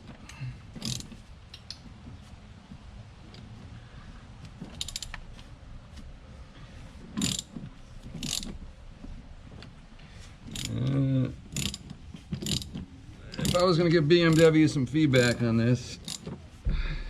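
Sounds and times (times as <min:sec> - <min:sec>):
socket ratchet clicking: 0:00.8 - 0:01.8, 0:04.7 - 0:05.2, 0:07.2 - 0:07.5, 0:08.2 - 0:08.6, 0:10.5 - 0:10.8, 0:11.5 - 0:14.6, 0:16.0 - 0:16.3.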